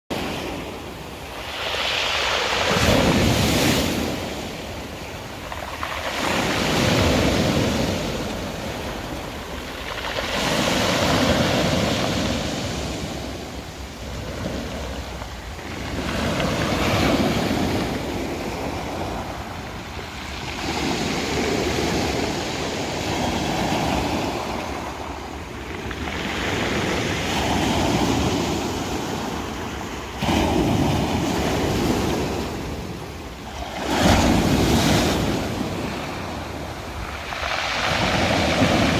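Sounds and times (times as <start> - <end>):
sea waves breaking on shore: 0.1 - 38.9.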